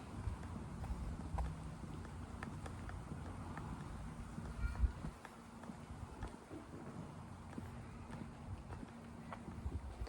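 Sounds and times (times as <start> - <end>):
footsteps walking: 0.0 - 10.0.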